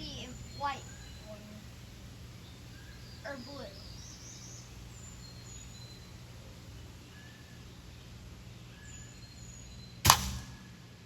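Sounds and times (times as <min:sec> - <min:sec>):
faint bird chirps: 0:00.0 - 0:10.8
bb gun shot: 0:10.0 - 0:10.8.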